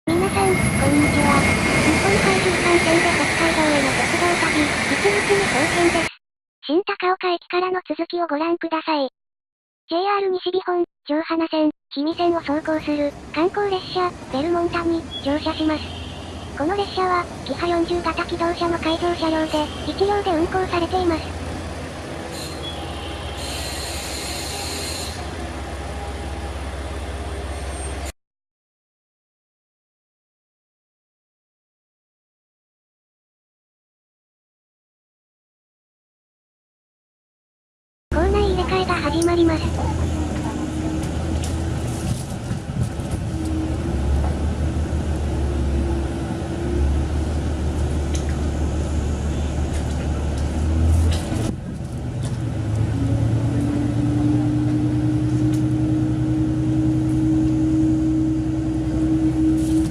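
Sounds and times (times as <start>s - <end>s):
diesel railcar rumbling: 0.1s - 6.1s, 12.1s - 28.1s, 38.1s - 59.9s
wheels squealing: 22.3s - 25.4s.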